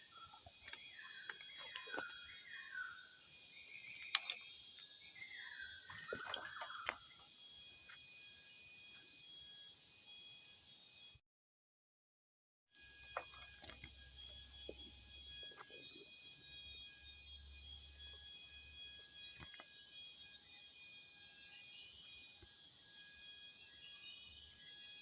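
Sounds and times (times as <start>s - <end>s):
bird calls: 0.0s - 7.2s
insects droning: 0.0s - 11.2s, 12.8s - 25.0s
sharp clicks: 4.0s - 4.6s.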